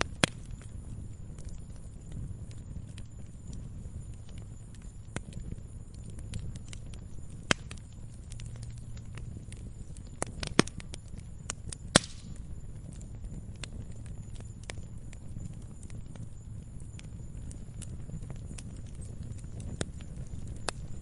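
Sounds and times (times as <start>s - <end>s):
campfire crackling and popping: 0.0s - 21.0s
low steady rumble: 0.0s - 21.0s.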